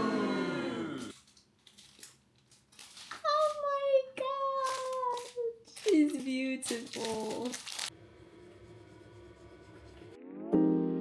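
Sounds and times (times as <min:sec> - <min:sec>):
piano music: 0:10.4 - 0:11.0.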